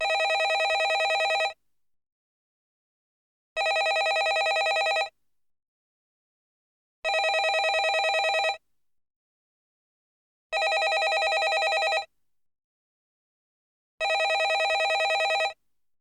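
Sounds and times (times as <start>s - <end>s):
telephone ringing: 0.0s - 1.6s, 3.6s - 5.1s, 7.1s - 8.6s, 10.6s - 12.1s, 14.0s - 15.6s.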